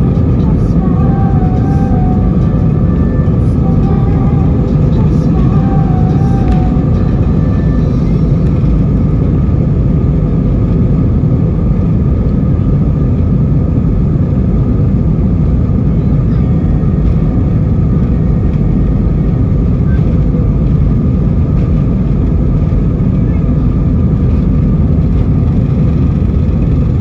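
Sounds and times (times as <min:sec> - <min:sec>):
airplane cabin engine rumble: 0:00.0 - 0:27.0.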